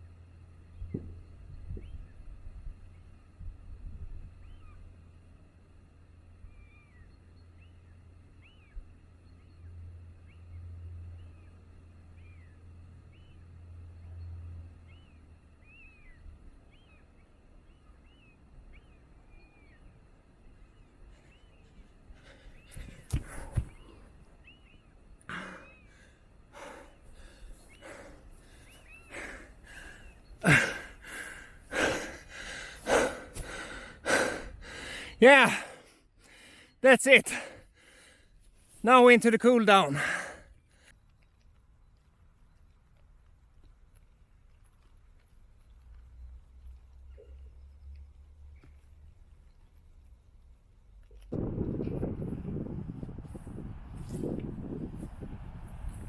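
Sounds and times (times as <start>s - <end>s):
birds chirping: 14.8s - 41.4s
man breathing hard: 25.3s - 38.3s, 40.0s - 40.6s.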